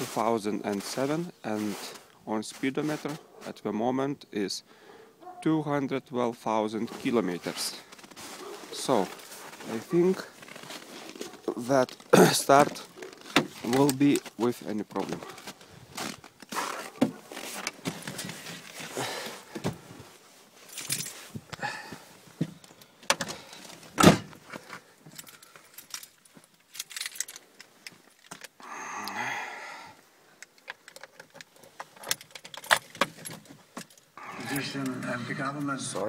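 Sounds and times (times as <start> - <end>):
handling clicks and knocks: 7.9 - 19.8, 22.4 - 28.6, 30.4 - 34.2
car keys jangling: 20.7 - 21.3, 22.6 - 28.6, 30.4 - 34.2.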